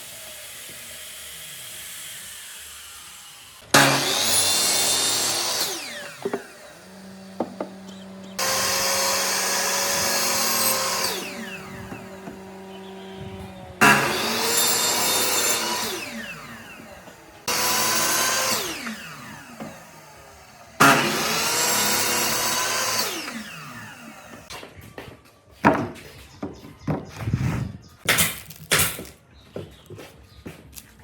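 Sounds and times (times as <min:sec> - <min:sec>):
power tool on wood: 0:00.0 - 0:24.6
knocks and scrapes: 0:25.6 - 0:30.0.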